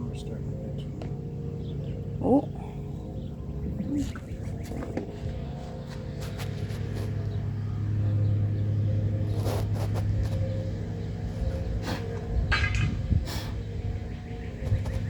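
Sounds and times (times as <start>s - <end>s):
low motor hum: 0.0s - 15.0s
hands digging through soil: 5.9s - 7.3s, 9.2s - 10.4s.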